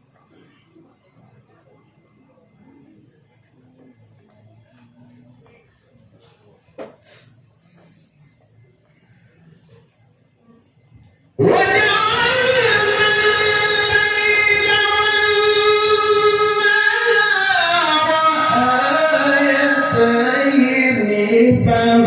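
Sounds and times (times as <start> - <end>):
man chanting melodically: 11.4 - 22.0.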